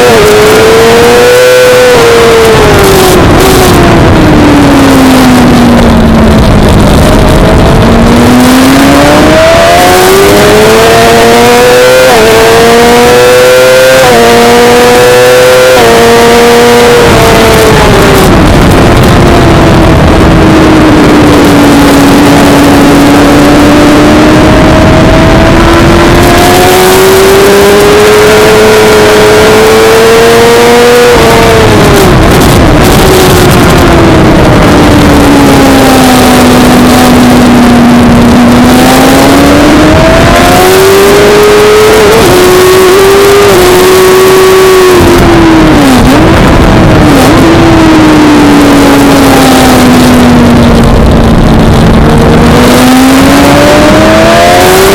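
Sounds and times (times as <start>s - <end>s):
motorcycle engine at full throttle: 0.0s - 54.9s.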